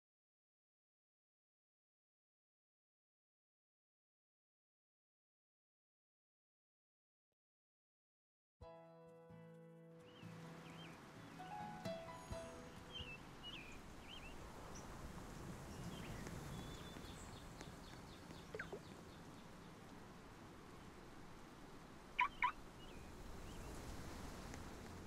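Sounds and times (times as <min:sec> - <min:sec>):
faint steady background noise: 0:09.8 - 0:25.0
bird calls: 0:10.1 - 0:19.8, 0:22.2 - 0:23.9.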